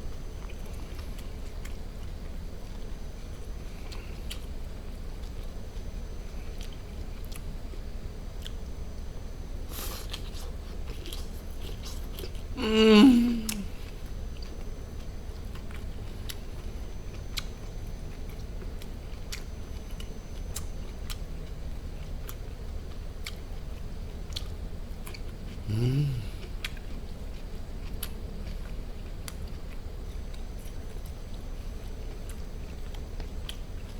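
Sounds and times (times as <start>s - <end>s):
close chewing with mouth clicks: 0.2s - 8.7s, 9.7s - 12.6s, 13.4s - 33.9s
appreciative mmm eating sound: 9.7s - 14.6s, 24.3s - 27.0s.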